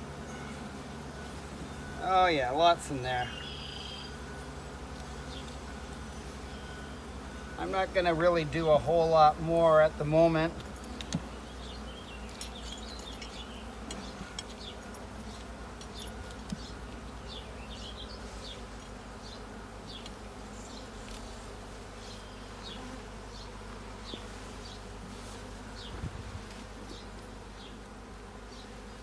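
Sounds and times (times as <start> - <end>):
honeybees buzzing: 0.0 - 29.0
faint knocks from hive equipment: 10.5 - 11.4.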